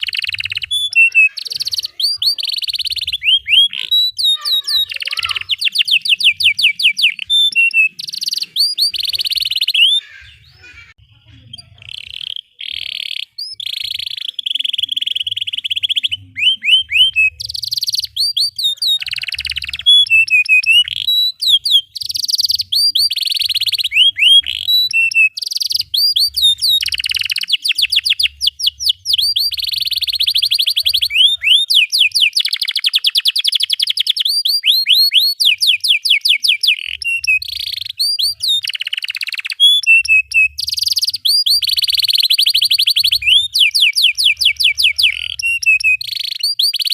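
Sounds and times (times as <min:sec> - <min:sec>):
canary singing: 0:00.0 - 0:46.9.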